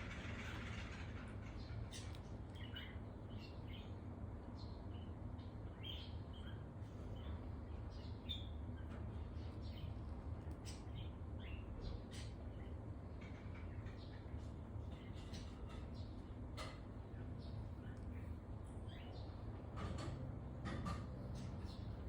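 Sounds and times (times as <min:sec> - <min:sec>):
steady low hum: 0:00.0 - 0:22.0
bird chirping: 0:01.4 - 0:04.0, 0:04.6 - 0:10.0, 0:10.6 - 0:12.8, 0:17.1 - 0:19.5, 0:21.2 - 0:22.0.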